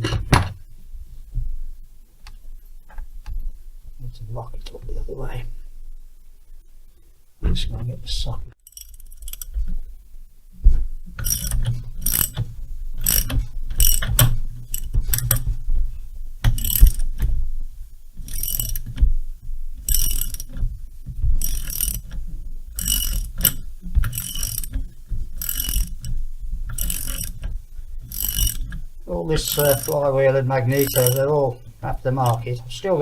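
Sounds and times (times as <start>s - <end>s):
socket ratchet wrench clicking: 8.7s - 9.5s, 11.2s - 15.4s, 16.5s - 17.2s, 18.2s - 18.9s, 19.9s - 20.6s, 21.4s - 22.2s, 22.8s - 24.8s, 25.4s - 26.1s, 26.7s - 28.7s, 29.4s - 30.0s, 30.7s - 31.3s, 32.2s - 32.4s.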